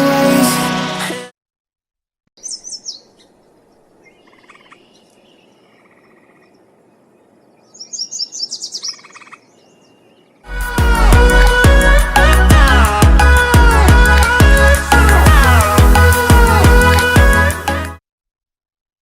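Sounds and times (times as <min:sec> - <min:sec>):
background music: 0:00.0 - 0:01.3, 0:10.5 - 0:18.0
small songbird chirping: 0:02.4 - 0:10.5.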